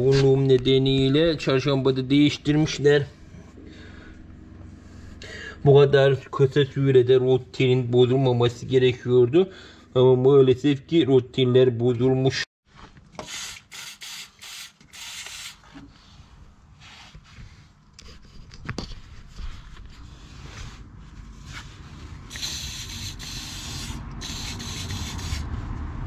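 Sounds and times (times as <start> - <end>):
rubbing and hissing strokes: 19.0 - 25.7.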